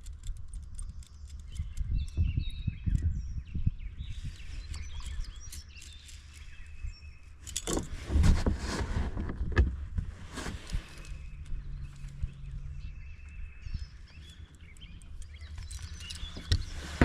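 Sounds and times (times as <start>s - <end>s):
birds chirping: 0.0s - 7.8s, 10.4s - 17.0s
rustling and knocking in a kayak: 4.0s - 17.0s.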